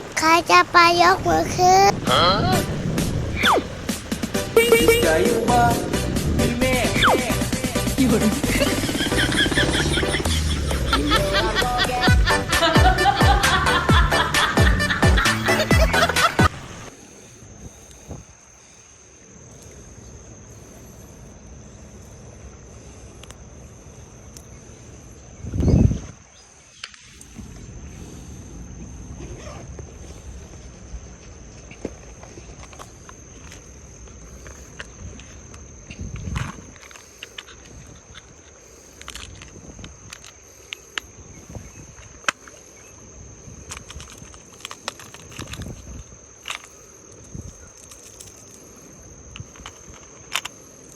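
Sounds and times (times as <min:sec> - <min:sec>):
insect droning: 0:00.0 - 0:50.9
thin high whine: 0:03.0 - 0:13.2
handling thumps and rustles: 0:29.2 - 0:42.7.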